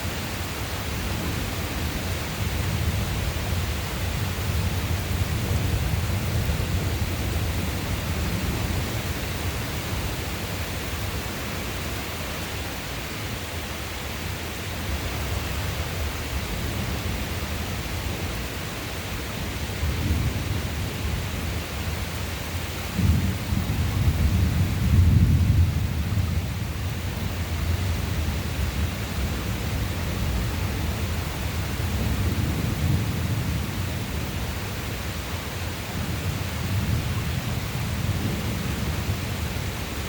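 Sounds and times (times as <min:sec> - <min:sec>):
rain hiss: 0:00.0 - 0:40.0
thunder rumbling: 0:22.9 - 0:30.8.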